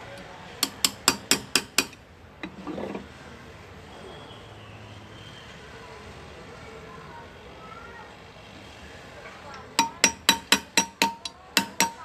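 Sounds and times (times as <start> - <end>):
hammer tapping engraving tool: 0.6 - 2.0, 9.8 - 12.0
soft scrape: 2.5 - 3.3.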